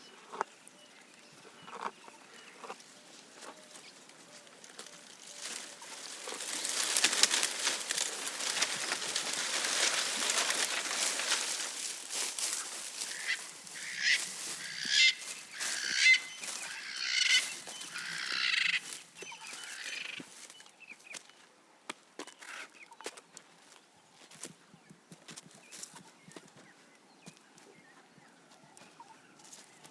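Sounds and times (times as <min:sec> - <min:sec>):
bird calling: 0:00.0 - 0:20.7
leaves and twigs rustling: 0:00.0 - 0:21.4.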